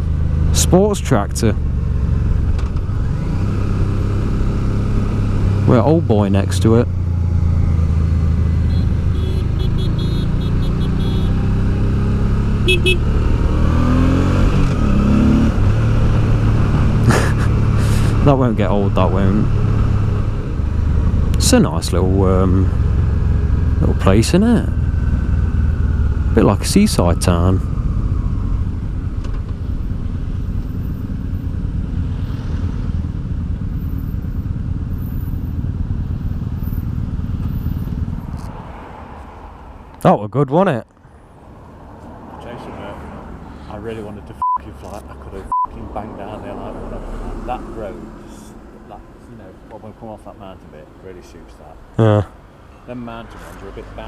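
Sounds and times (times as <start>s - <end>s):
motorcycle engine cruising: 0.0s - 39.7s
wind and road noise: 0.0s - 54.0s
motorcycle engine running: 6.9s - 11.8s, 12.6s - 13.6s.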